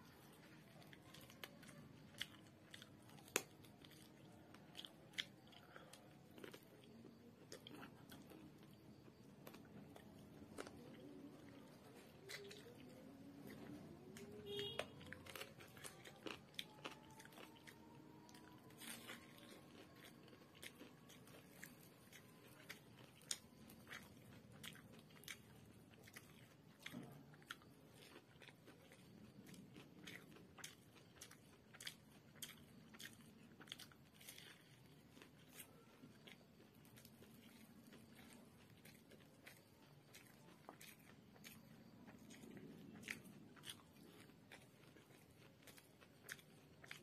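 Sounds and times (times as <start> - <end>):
person chewing food: 0.0 - 47.0
crisp crunches: 9.4 - 24.0.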